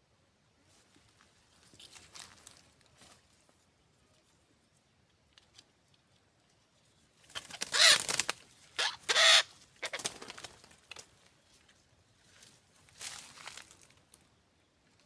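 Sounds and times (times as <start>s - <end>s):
bird harsh raspy squawks: 7.5s - 8.2s, 8.8s - 10.0s.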